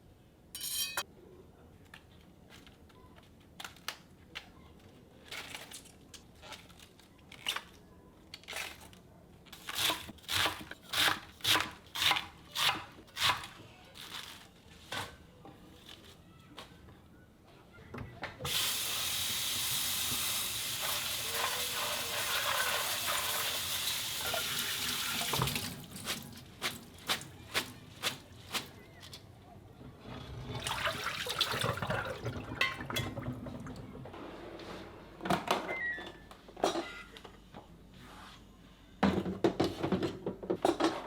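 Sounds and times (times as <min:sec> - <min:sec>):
tap water running: 0:18.5 - 0:27.2, 0:30.5 - 0:33.9.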